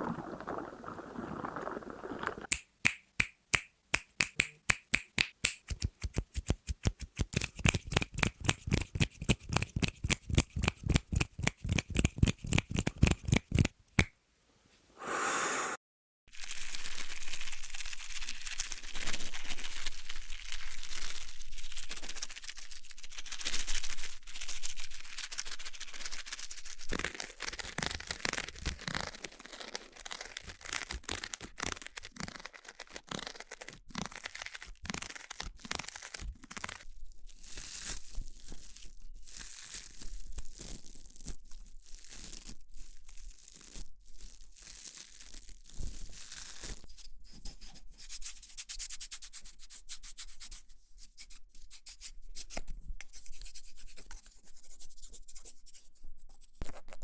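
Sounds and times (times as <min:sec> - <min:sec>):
dense crinkling: 0:00.0 - 0:02.5.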